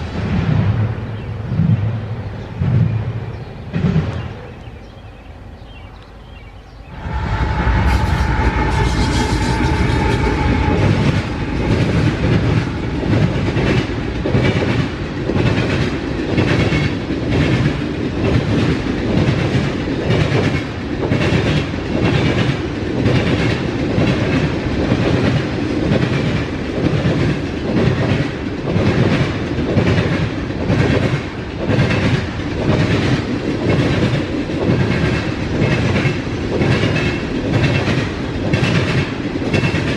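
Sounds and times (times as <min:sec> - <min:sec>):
freight train passing: 0:00.0 - 0:39.9
steady tone: 0:06.6 - 0:14.7
train wheels clicking over rail joints: 0:07.5 - 0:39.9.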